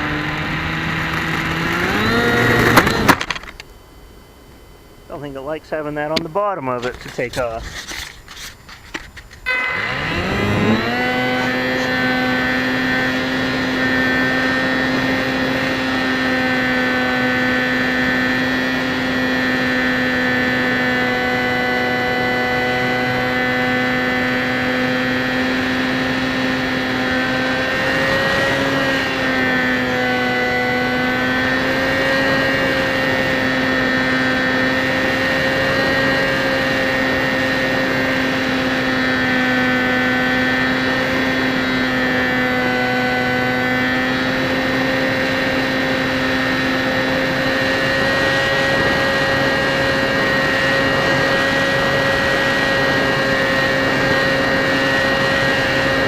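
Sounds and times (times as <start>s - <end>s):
electric motor and propeller hum: 0.0s - 56.0s.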